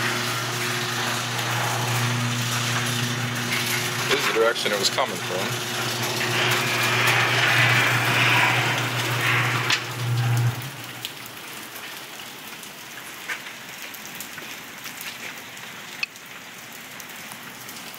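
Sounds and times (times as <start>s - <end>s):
low steady hum: 0.0s - 4.2s, 5.2s - 11.4s
rain and hail falling: 0.0s - 17.9s.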